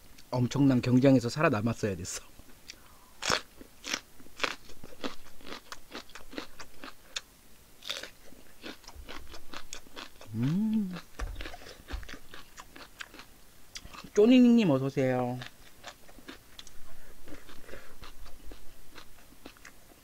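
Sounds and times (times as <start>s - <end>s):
crunchy chewing: 2.6s - 14.2s, 15.4s - 20.0s
person humming: 10.3s - 11.1s.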